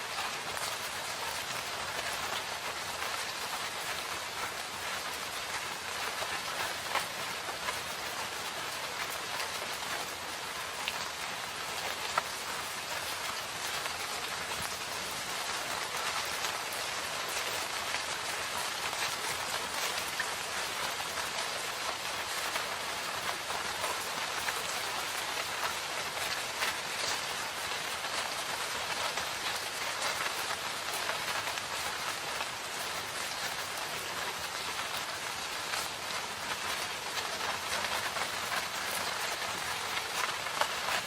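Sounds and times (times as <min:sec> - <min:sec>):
rain falling in forest: 0:00.0 - 0:41.0.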